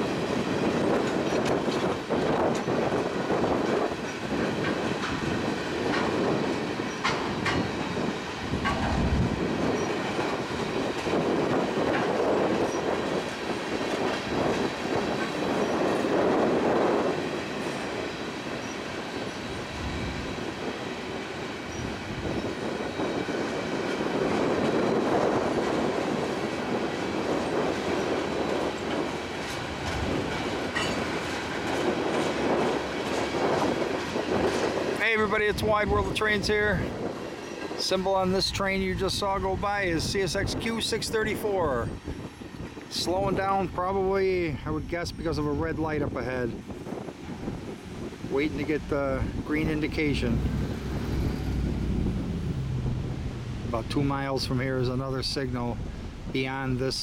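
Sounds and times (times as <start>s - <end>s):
steel wheels clattering over rail joints: 0.0s - 44.2s
freight train rolling past: 0.0s - 57.0s.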